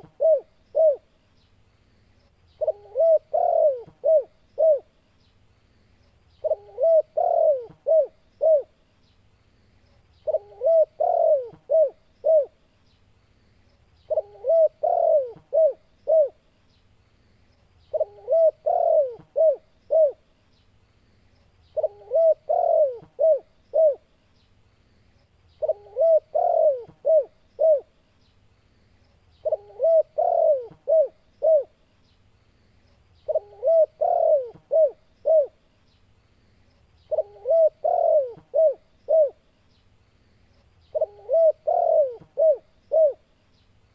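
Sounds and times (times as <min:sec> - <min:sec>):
dove cooing: 0:00.0 - 0:01.1, 0:02.6 - 0:04.9, 0:06.4 - 0:08.8, 0:10.2 - 0:12.6, 0:14.1 - 0:16.4, 0:17.9 - 0:20.2, 0:21.8 - 0:24.1, 0:25.6 - 0:27.9, 0:29.4 - 0:31.8, 0:33.2 - 0:35.6, 0:37.1 - 0:39.4, 0:40.9 - 0:43.3.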